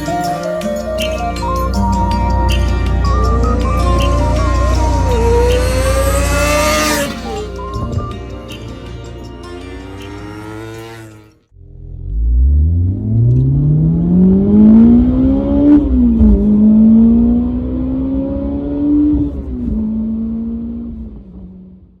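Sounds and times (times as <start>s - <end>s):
motorcycle engine accelerating hard: 3.1s - 7.7s, 9.7s - 21.7s.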